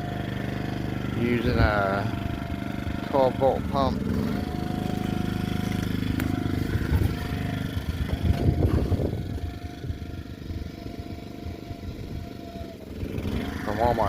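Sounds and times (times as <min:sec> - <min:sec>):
generator engine running: 0:00.0 - 0:14.0.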